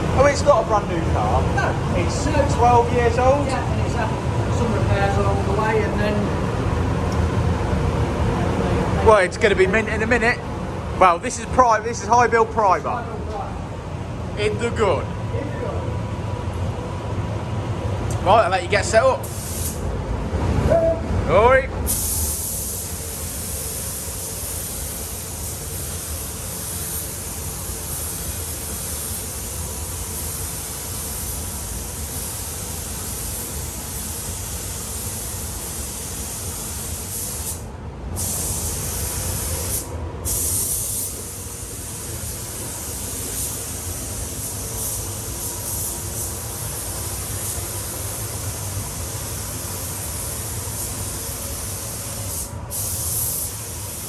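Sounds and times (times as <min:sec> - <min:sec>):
paint spray gun hissing: 0:19.2 - 0:19.8, 0:21.9 - 0:37.6, 0:38.2 - 0:54.0.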